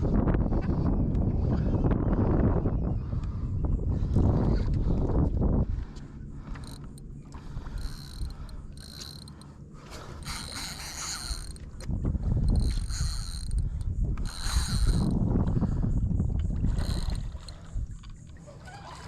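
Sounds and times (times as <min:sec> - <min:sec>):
wind and water rumble: 0:00.0 - 0:19.0
fishing reel whirring: 0:04.0 - 0:19.0.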